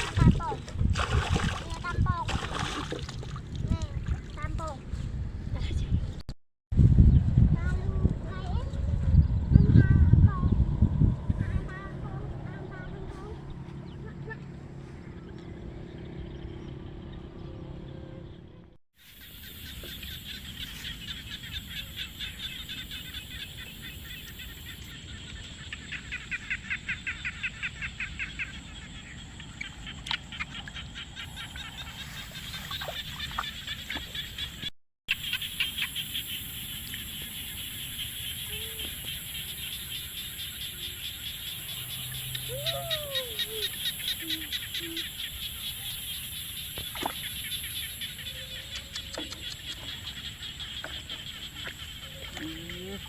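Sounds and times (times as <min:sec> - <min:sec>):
chorus of fast-pulsing animal calls: 0:35.2 - 0:53.0.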